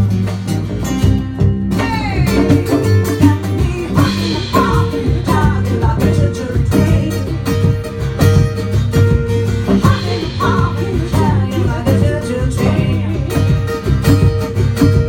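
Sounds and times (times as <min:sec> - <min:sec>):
acoustic guitar playing: 0:00.0 - 0:15.0
person singing: 0:01.7 - 0:07.9, 0:09.6 - 0:14.0.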